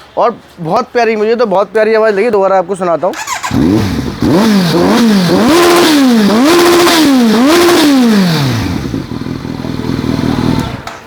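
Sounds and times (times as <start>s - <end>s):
motorcycle engine idling: 3.2s - 11.0s
motorcycle engine revving: 3.2s - 11.0s.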